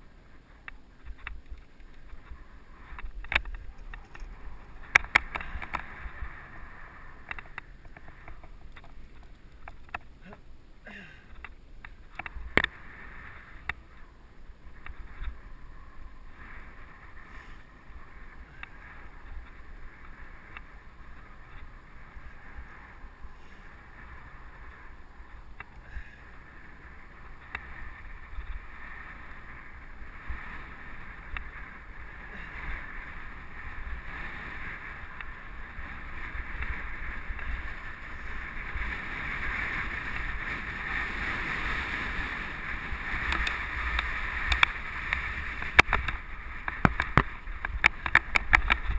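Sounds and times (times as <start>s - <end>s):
bike tyre rumble: 0.0s - 48.9s
bike clicks and knocks: 0.6s - 6.0s, 43.2s - 48.9s
wind rush: 0.9s - 9.6s.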